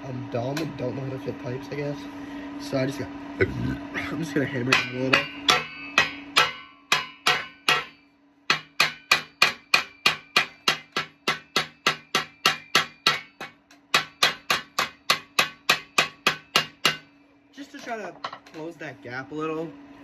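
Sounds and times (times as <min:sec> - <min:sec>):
hammer striking steel pipe: 0:04.7 - 0:17.1.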